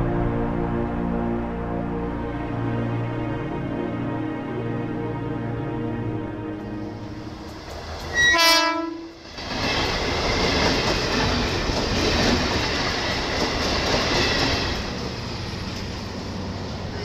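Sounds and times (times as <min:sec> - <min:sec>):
train horn blast: 0:00.0 - 0:07.4, 0:08.1 - 0:09.2
train wheels rumbling on rails: 0:06.6 - 0:17.0.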